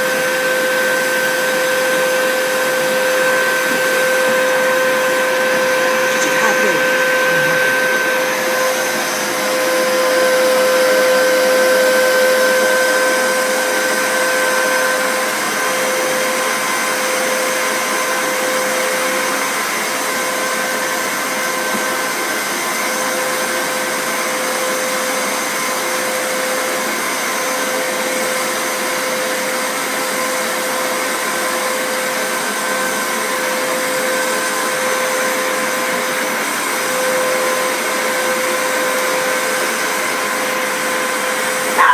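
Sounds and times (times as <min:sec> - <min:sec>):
vacuum cleaner running: 0:00.0 - 0:41.9.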